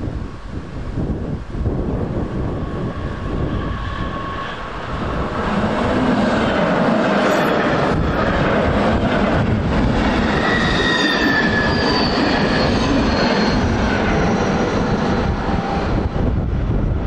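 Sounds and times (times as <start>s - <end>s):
train wheels rumbling on rails: 1.7s - 17.0s
high squealing tones: 6.2s - 8.4s, 10.0s - 16.0s.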